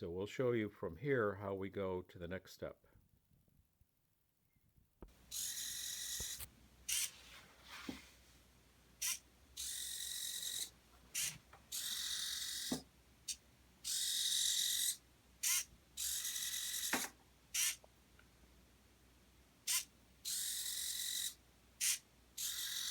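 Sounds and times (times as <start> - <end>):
small motor gear whine: 5.3 - 7.1, 9.0 - 12.8, 13.9 - 17.8, 19.7 - 22.9.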